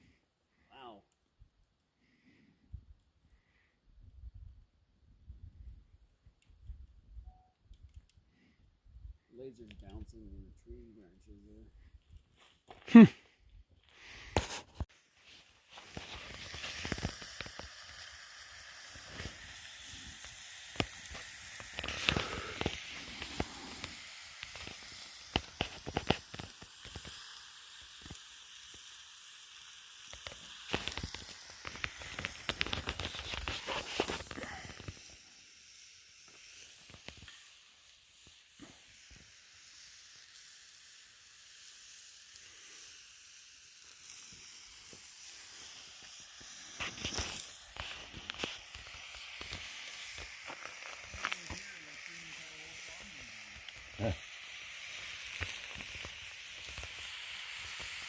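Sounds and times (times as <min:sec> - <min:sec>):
campfire crackling and hissing: 0:00.0 - 0:58.0
sharp pops from fire: 0:13.9 - 0:58.0.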